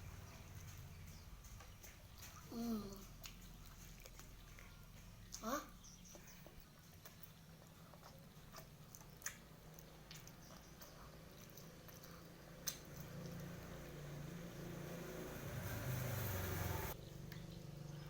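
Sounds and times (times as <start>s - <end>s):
chewing mouth sounds: 0.1s - 14.3s.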